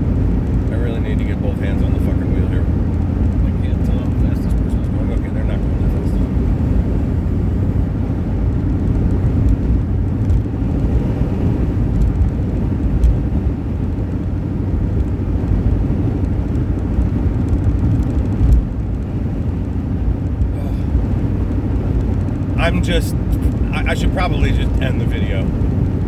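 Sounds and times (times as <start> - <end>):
vehicle bump: 0.0 - 10.5
engine and road rumble: 0.0 - 26.0.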